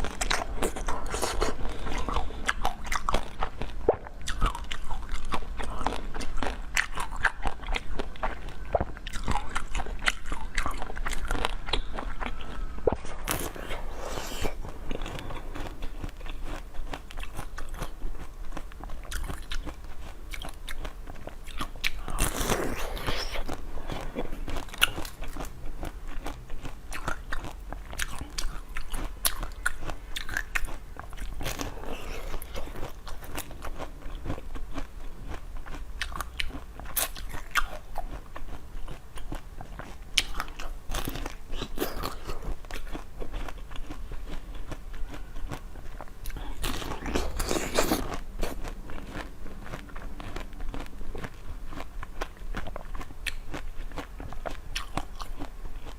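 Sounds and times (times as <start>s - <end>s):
crunchy food chewing: 0.0s - 55.9s.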